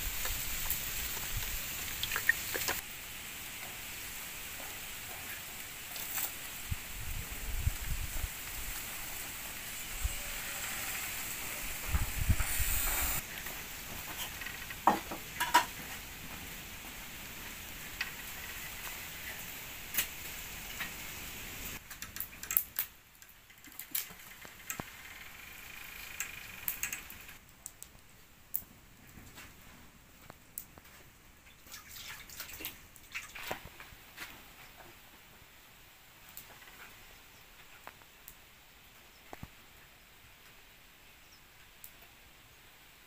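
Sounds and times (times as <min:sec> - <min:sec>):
food sizzling in a pan: 0:08.0 - 0:13.3.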